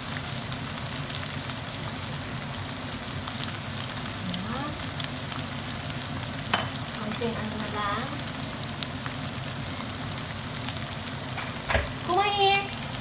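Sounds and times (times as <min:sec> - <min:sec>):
chicken sizzling in a frying pan: 0:00.0 - 0:13.0.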